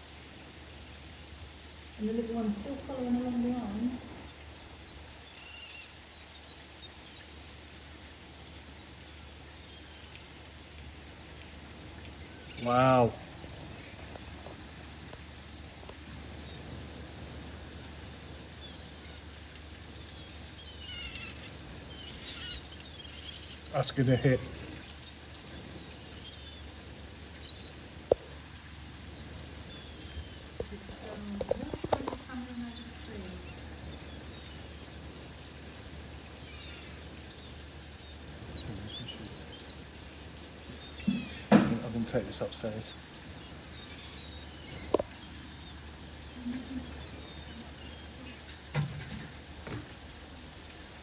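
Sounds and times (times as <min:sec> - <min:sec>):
outdoor background noise: 0:00.0 - 0:51.0
faint bird chirps: 0:02.0 - 0:07.6, 0:12.1 - 0:14.6, 0:18.4 - 0:48.7
faint clicks: 0:22.7 - 0:23.3, 0:24.8 - 0:26.1, 0:30.5 - 0:33.8.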